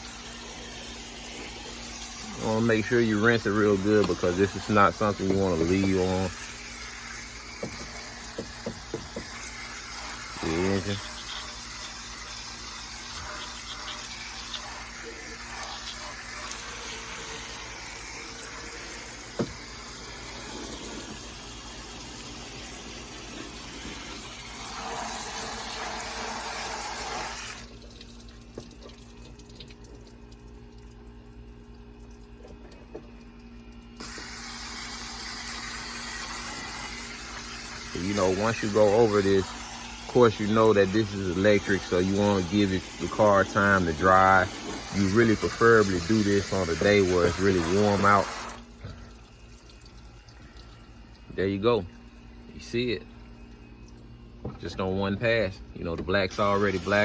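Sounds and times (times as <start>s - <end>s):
hose spraying water: 0.0s - 28.2s, 34.0s - 49.8s, 56.3s - 57.0s.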